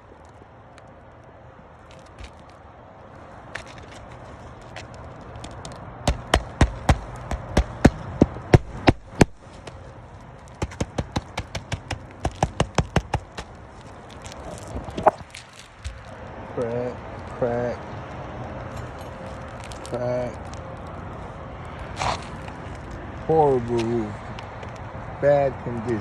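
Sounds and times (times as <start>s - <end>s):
sharp knocks on brittle roof: 6.0s - 9.5s, 10.5s - 13.6s.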